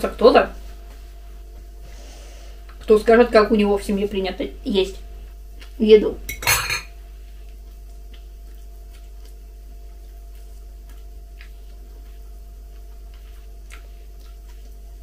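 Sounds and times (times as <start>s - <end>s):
steady low hum: 0.0s - 15.0s
person chewing: 7.3s - 15.0s.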